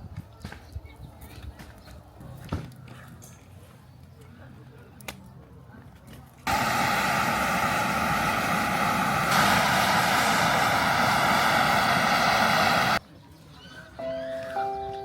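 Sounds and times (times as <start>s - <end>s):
machine drone with whine: 6.5s - 13.0s.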